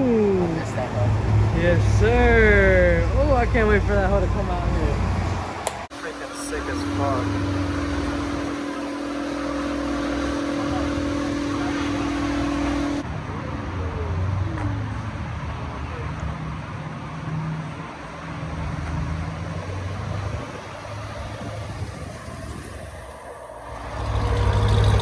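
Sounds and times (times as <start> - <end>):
low uneven engine drone: 0.0 - 25.0
steady whine: 1.6 - 13.0.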